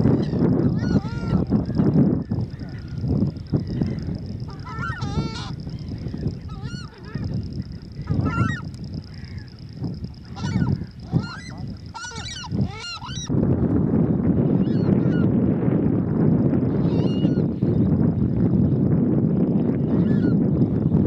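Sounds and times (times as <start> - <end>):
marsh birds calling: 0.0 - 13.3, 16.7 - 18.4.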